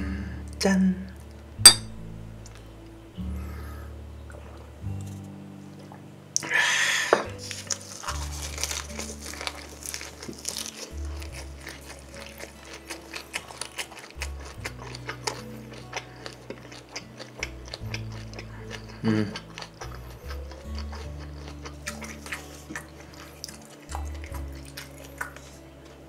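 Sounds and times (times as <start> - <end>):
background music with bass line: 0.0 - 6.3
chewing and crunching: 7.3 - 26.0.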